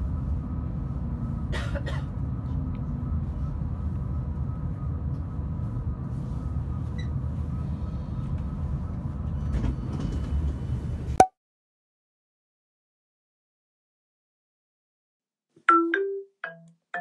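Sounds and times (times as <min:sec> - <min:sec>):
train low rumble: 0:00.0 - 0:11.2.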